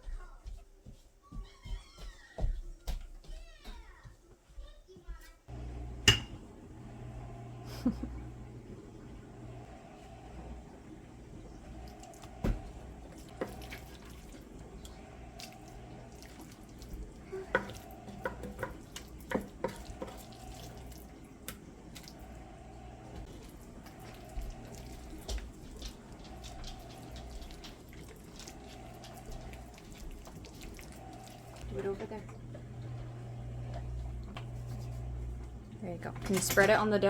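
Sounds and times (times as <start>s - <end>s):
steady low hum: 5.5s - 37.0s
utensils and dishes clicking: 36.1s - 37.0s.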